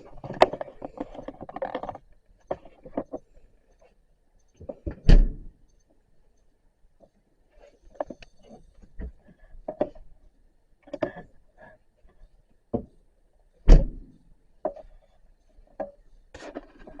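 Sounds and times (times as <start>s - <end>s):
knocks and clunks: 13.7s - 14.8s.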